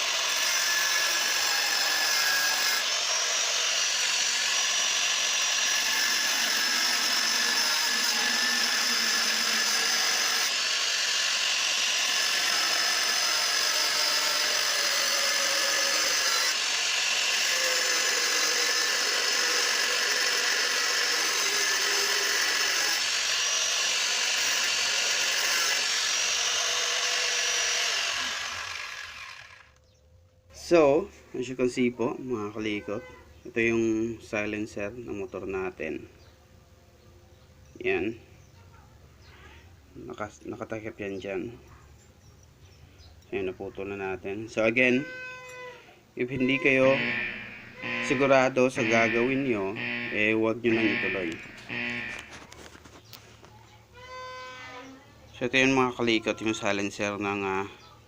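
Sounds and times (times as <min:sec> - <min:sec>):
grinder cutting metal: 0:00.0 - 0:29.8, 0:46.4 - 0:52.6.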